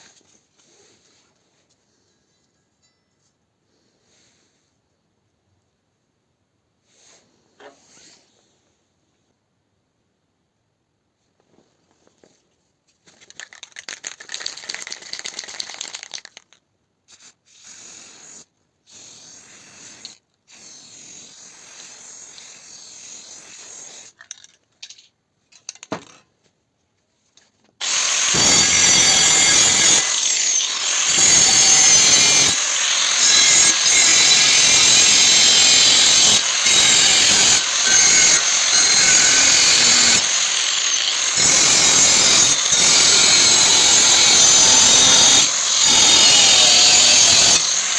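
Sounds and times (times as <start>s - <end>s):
workshop sounds: 24.0s - 39.0s
power tool grinding steel: 27.8s - 47.9s.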